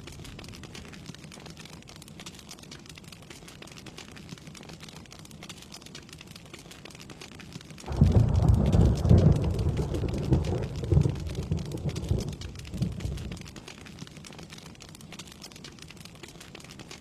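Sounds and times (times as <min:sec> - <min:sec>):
rain pattering: 0:00.0 - 0:17.0
thunder rumbling: 0:07.9 - 0:13.5.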